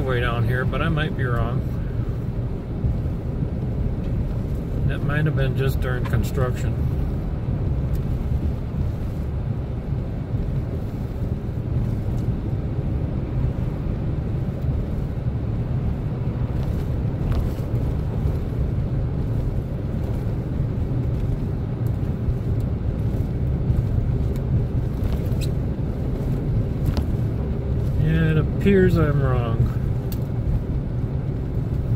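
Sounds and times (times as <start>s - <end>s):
pickup truck engine and road noise: 0.0s - 31.9s.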